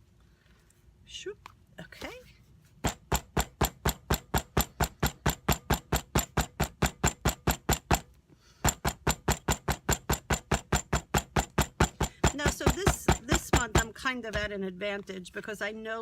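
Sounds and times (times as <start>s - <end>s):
hammer pounding on paper: 2.8s - 14.5s.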